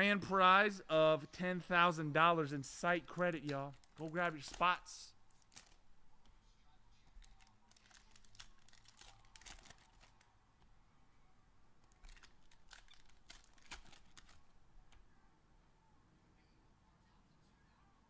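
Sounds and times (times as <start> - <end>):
card packaging crinkling and tearing: 3.0 - 5.9, 7.1 - 10.3, 11.8 - 14.5.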